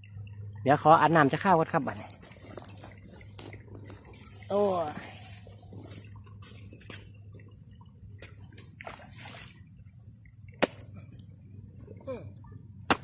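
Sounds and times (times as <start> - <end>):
water splashing and sloshing: 0.0 - 13.0
sharp slap: 10.6 - 10.8.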